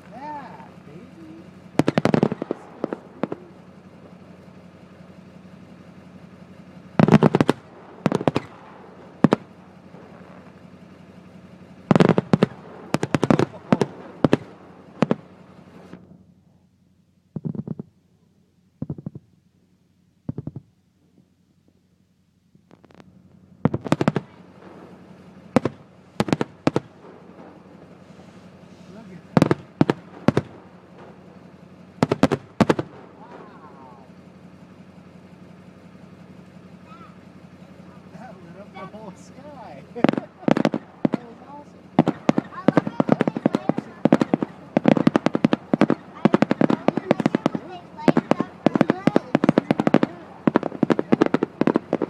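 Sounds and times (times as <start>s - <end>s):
fireworks bangs: 0.0s - 16.3s, 17.3s - 18.0s, 22.6s - 52.0s.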